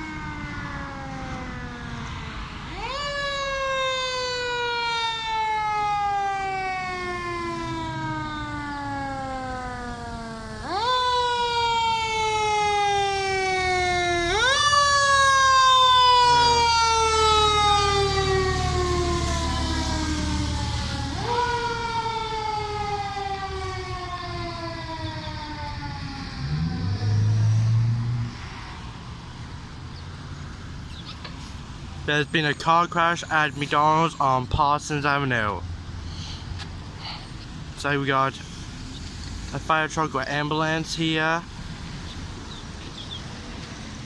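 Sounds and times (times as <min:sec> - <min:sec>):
fire truck siren: 0:00.0 - 0:31.6.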